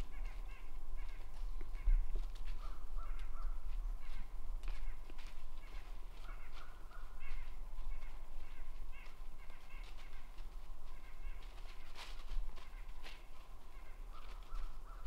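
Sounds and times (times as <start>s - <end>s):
birds calling: 0.0s - 15.0s
footsteps crunching dry leaves: 0.0s - 15.0s.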